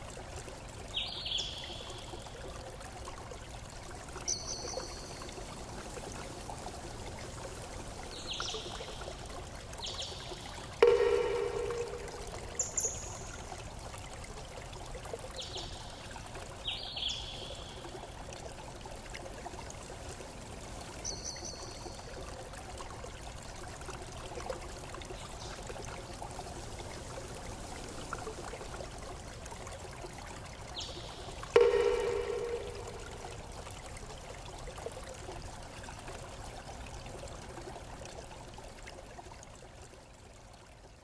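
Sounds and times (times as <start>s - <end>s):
water trickling and pouring: 0.0s - 41.0s
high-pitched water plinks: 4.2s - 5.4s, 8.1s - 14.2s, 30.7s - 34.0s.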